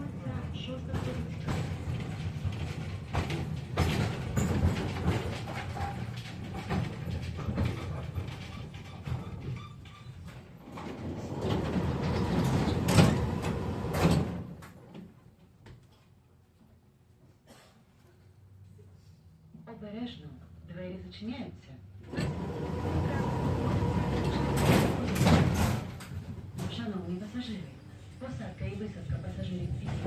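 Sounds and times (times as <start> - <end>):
tram rumbling on rails: 0.0 - 9.7, 10.4 - 14.6, 22.1 - 27.8
wheels knocking and clattering: 0.6 - 14.7.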